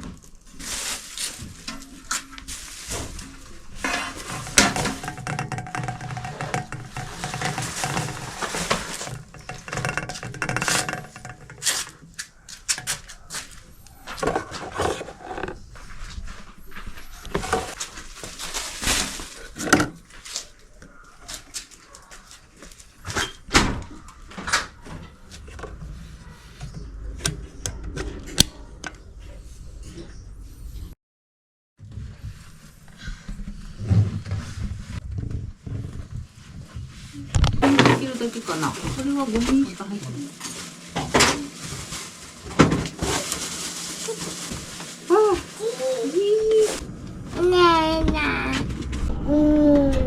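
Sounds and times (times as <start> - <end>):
objects being moved and set down: 0.0 - 20.6, 31.8 - 46.9.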